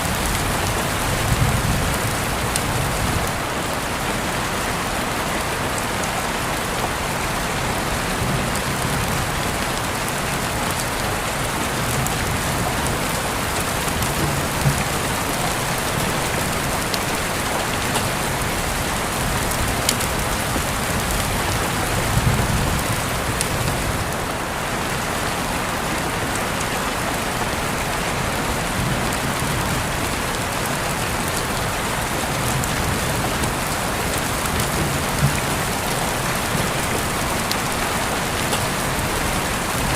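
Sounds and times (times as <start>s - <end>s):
steady rain hiss: 0.0s - 39.9s
rain drop ticks: 11.8s - 21.8s, 32.4s - 39.9s.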